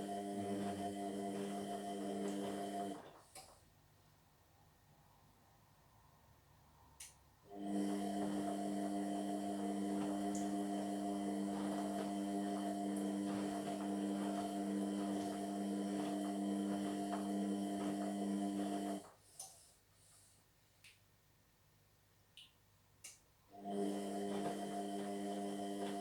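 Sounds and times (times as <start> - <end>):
washing machine humming: 0.0 - 3.2, 7.5 - 19.1, 23.5 - 26.0.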